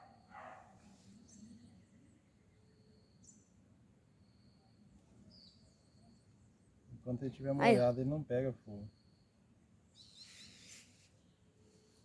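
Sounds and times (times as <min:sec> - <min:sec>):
faint high insect-like tone: 0:00.0 - 0:06.6, 0:08.8 - 0:10.2.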